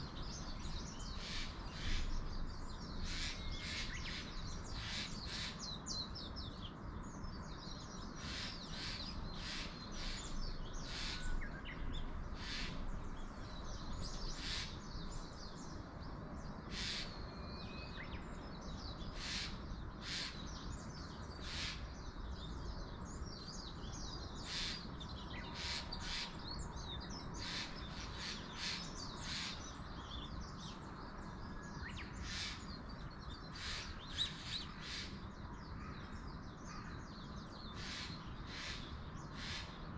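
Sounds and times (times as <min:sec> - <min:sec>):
wild birds calling: 0:00.0 - 0:39.9
wind in forest: 0:00.0 - 0:39.9
crows cawing: 0:12.4 - 0:12.8.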